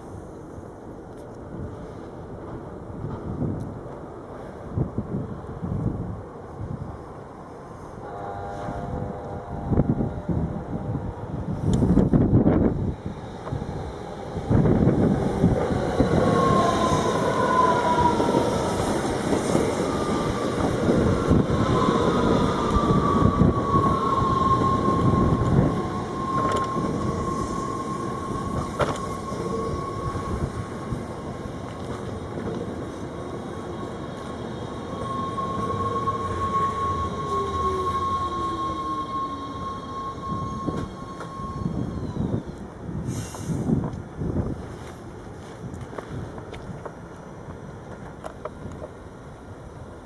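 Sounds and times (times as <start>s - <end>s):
passenger train on rails: 0.0s - 50.0s
high steady squeal: 8.0s - 32.2s, 33.2s - 43.4s.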